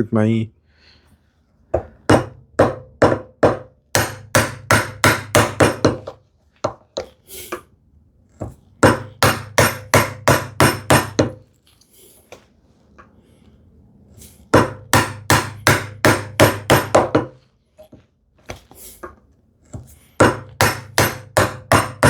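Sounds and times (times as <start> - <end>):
mallet striking a chisel in wood: 1.8 - 7.1, 8.8 - 11.4, 14.5 - 17.4, 19.0 - 22.0.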